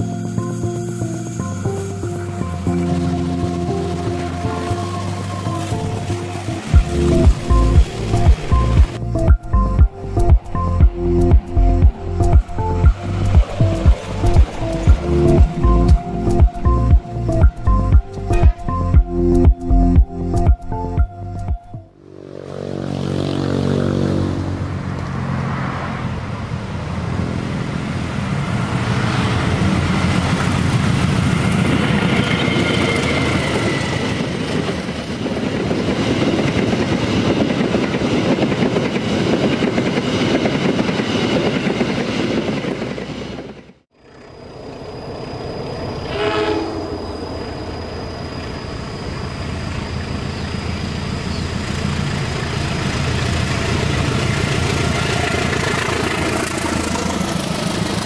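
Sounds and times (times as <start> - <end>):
diesel locomotive engine humming: 0.0 - 58.0
train wheels clattering on rails: 29.4 - 43.8
train horn blast: 46.0 - 47.0.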